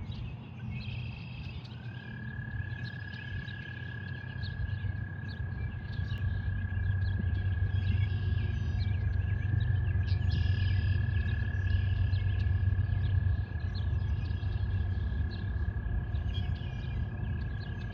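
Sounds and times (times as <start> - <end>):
birds chirping: 0.0 - 17.9
frogs chirping: 0.0 - 17.9
steady low rumble: 0.0 - 17.9
thin constant high tone: 6.2 - 17.9.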